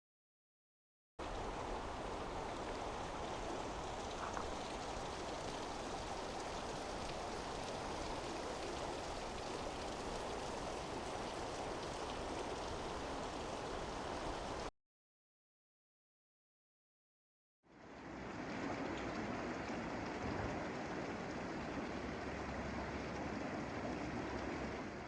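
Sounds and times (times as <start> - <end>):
stream flowing over rocks: 1.2 - 14.7.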